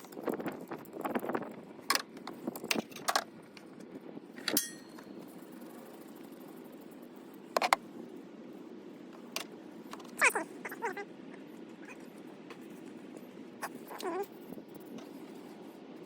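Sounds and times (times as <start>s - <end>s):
metallic tool clinks and knocks: 4.5s - 5.0s.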